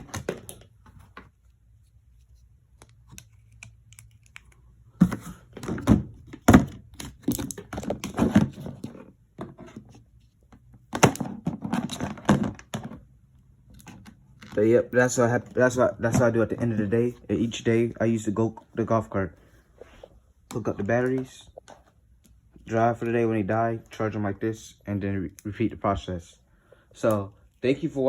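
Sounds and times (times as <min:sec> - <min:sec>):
objects clattering and clicking: 0:05.0 - 0:09.9.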